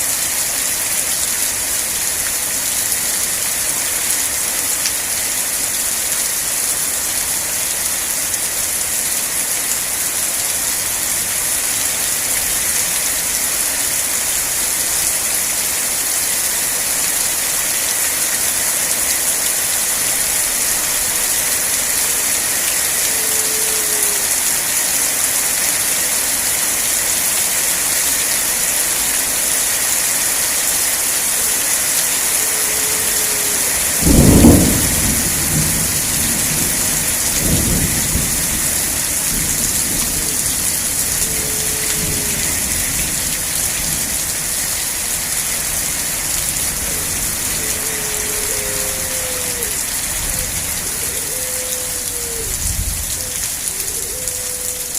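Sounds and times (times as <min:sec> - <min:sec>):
heavy rain hissing: 0:00.0 - 0:54.9
thunder rumbling: 0:33.8 - 0:43.3.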